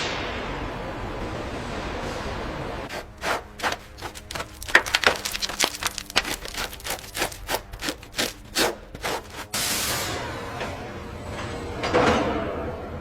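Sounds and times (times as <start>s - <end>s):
scraping on metal surface: 6.3s - 10.1s.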